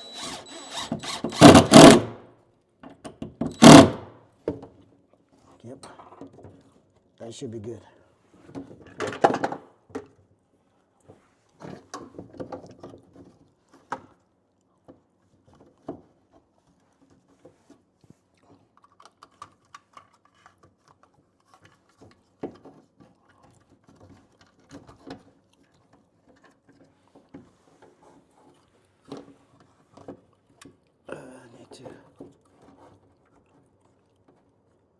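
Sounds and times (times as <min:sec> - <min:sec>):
sharp knocks: 0:03.6 - 0:04.0.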